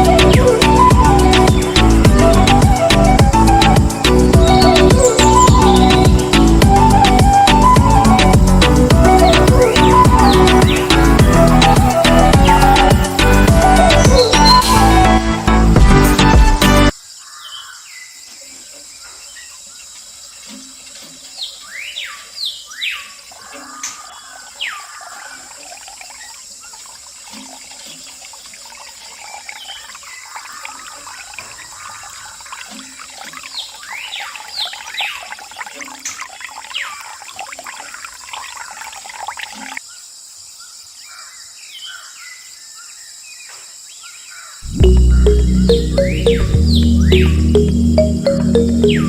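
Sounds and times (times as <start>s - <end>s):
water trickling and splashing: 18.3s - 40.5s.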